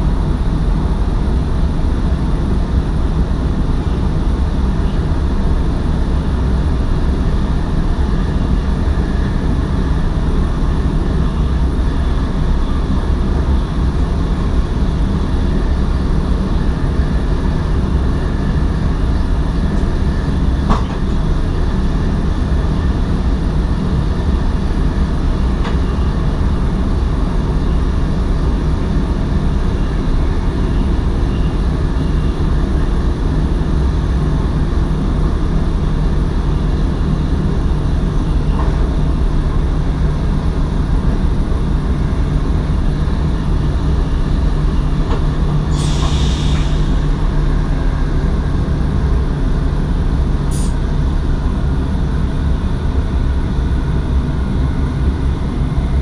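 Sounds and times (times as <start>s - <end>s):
train running along track: 0.0s - 56.0s
short air hiss: 45.7s - 47.2s, 50.5s - 50.8s.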